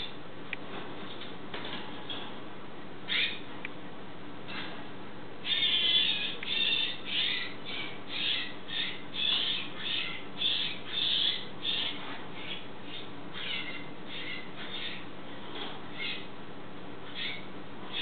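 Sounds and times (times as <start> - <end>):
baby birds begging calls: 3.1 - 3.5, 5.4 - 16.4, 17.0 - 18.0.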